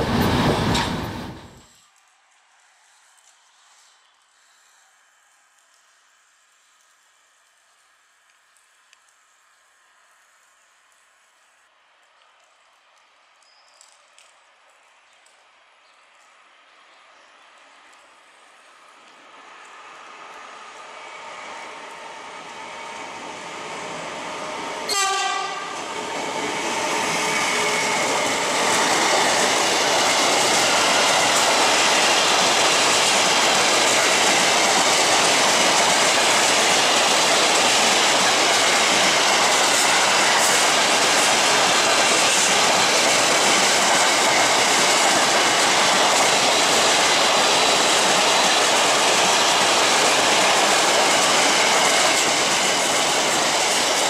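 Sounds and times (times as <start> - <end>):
freight train passing: 0.0 - 2.0, 16.1 - 54.0
locomotive horn blast: 24.9 - 25.8.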